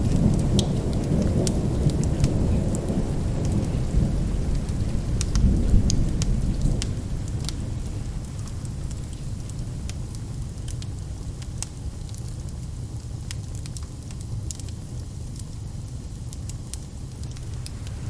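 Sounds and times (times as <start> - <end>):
low rolling thunder: 0.0 - 9.4
steady rain: 0.0 - 18.0
wood fire crackling and popping: 0.0 - 18.0.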